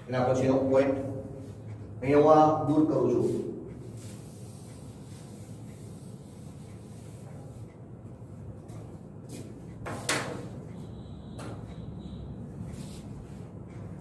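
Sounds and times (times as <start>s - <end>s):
duster rubbing on chalkboard: 3.1s - 7.7s.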